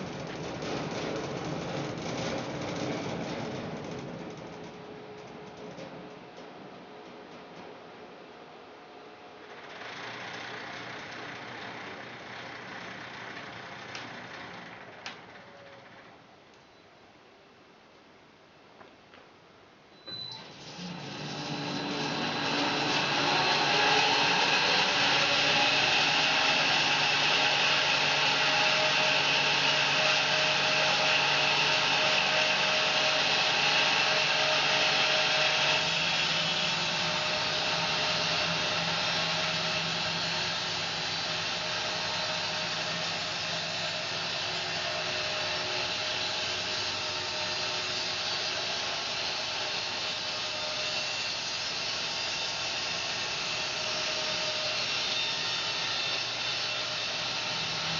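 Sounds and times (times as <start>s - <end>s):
bandsaw sawing through log: 20.8s - 57.9s.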